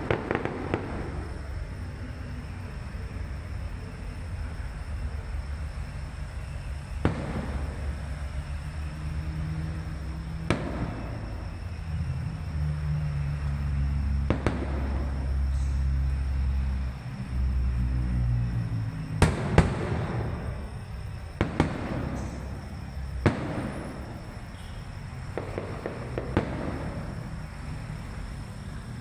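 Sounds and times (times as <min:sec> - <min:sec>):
firework bangs: 0:00.0 - 0:02.5, 0:06.4 - 0:12.4, 0:14.1 - 0:17.8, 0:18.4 - 0:28.6
firework crackling: 0:00.0 - 0:04.1, 0:05.5 - 0:12.4, 0:13.2 - 0:29.0.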